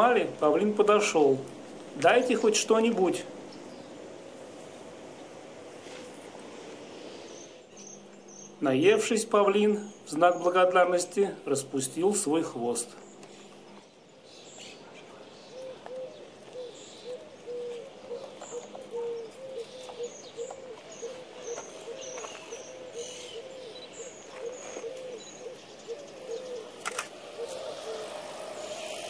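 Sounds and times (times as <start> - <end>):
small birds chirping: 0.0 - 29.0
bird giving low hoots: 15.0 - 29.0.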